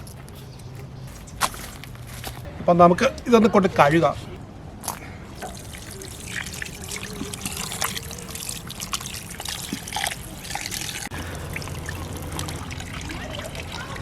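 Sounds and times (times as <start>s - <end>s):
small splashes: 4.8s - 14.0s
water trickling and pouring: 5.4s - 14.0s.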